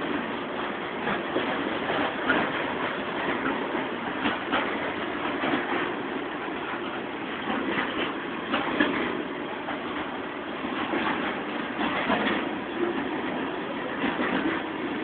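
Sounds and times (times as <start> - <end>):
steel wheels rumbling on rails: 0.0 - 15.0
clanks and clicks: 1.0 - 15.0.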